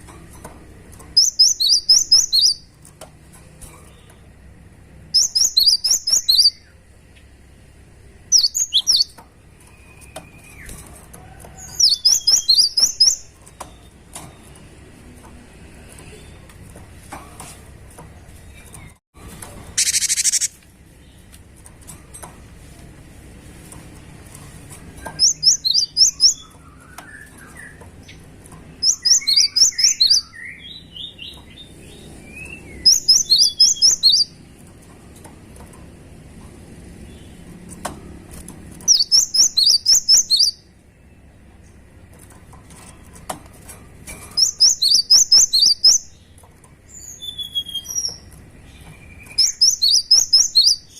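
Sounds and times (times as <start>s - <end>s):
bird singing high repeated notes: 5.2s - 6.7s, 19.8s - 20.6s
soft low bird chirps: 19.8s - 21.3s.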